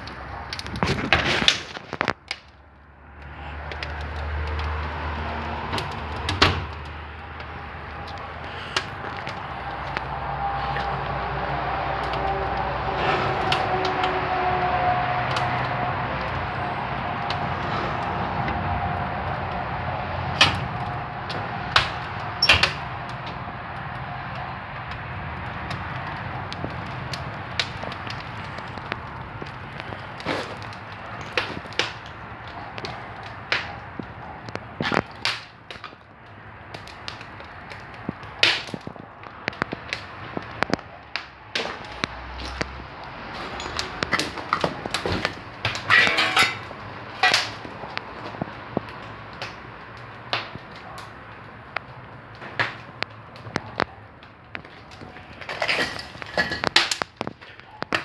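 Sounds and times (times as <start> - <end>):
wood fire crackling: 0.0 - 58.0
fire hiss: 3.2 - 35.6.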